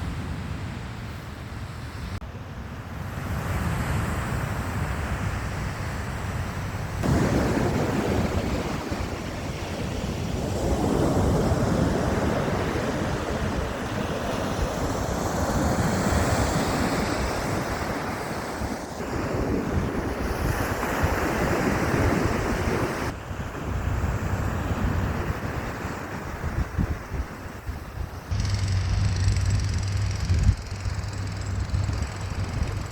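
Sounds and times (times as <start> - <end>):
wind rumbling on microphone: 0.0 - 32.9
sea surf washing in: 2.8 - 28.6.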